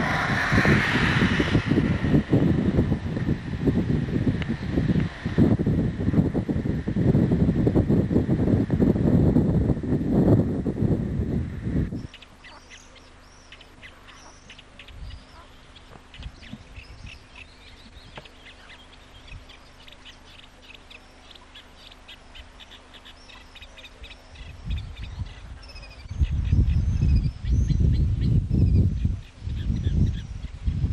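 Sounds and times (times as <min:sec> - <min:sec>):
wind buffeting microphone: 0:00.0 - 0:12.6, 0:14.1 - 0:30.9
faint steady hum: 0:00.0 - 0:30.9
small birds chirping: 0:11.9 - 0:30.9.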